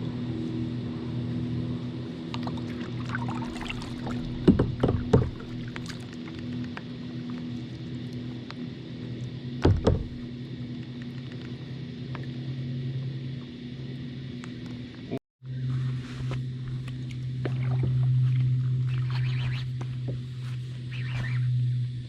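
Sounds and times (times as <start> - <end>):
low engine hum: 0.0 - 22.0
hollow knocks on a kayak: 4.3 - 5.8, 9.6 - 10.2.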